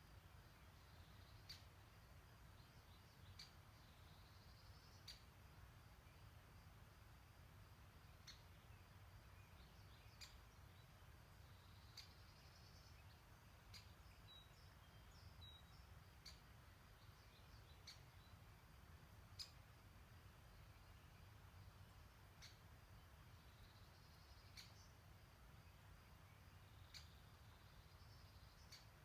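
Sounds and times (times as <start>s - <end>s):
soft bird chirps: 0.0s - 6.8s, 7.5s - 29.0s
faint low rumble: 0.0s - 29.0s.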